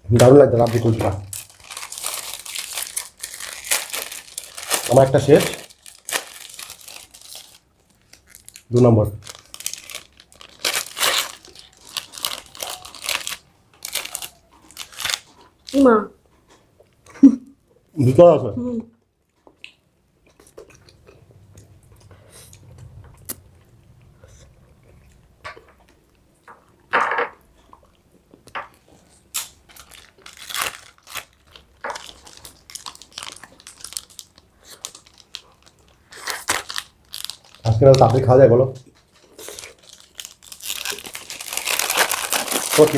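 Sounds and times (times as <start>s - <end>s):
plastic wrapper crinkling: 0.2s - 15.9s, 28.5s - 42.9s
person eating ice cream: 19.3s - 26.8s.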